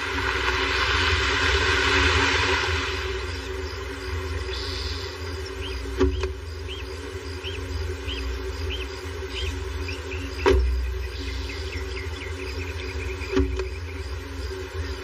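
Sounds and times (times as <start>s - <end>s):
steady low hum: 0.0s - 15.0s
birds chirping: 3.0s - 15.0s.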